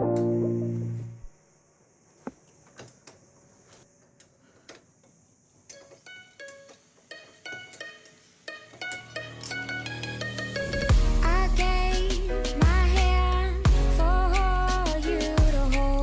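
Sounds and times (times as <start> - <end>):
plucked string notes: 0.0 - 1.0.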